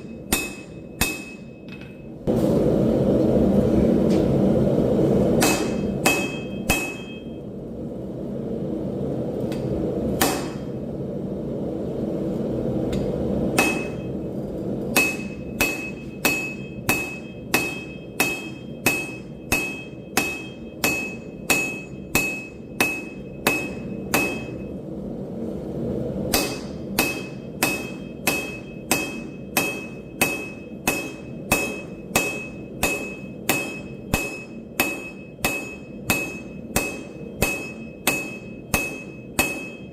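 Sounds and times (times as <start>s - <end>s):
hammer striking steel on anvil: 0.0s - 2.1s, 5.4s - 7.4s, 10.2s - 10.8s, 12.9s - 14.1s, 14.9s - 24.7s, 26.3s - 39.9s
low rumble: 0.0s - 39.9s.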